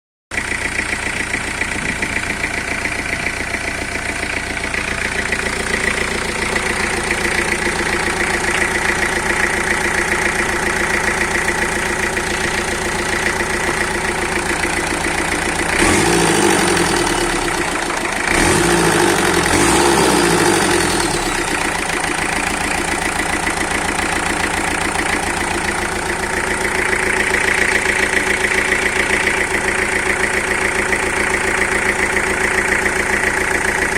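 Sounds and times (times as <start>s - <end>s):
diesel engine idling and revving: 0.3s - 33.9s.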